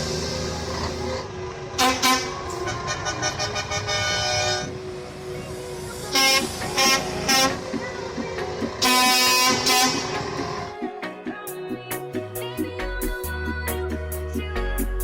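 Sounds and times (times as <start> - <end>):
truck air horn blasts: 1.8 - 4.8, 6.1 - 7.6, 8.8 - 10.3.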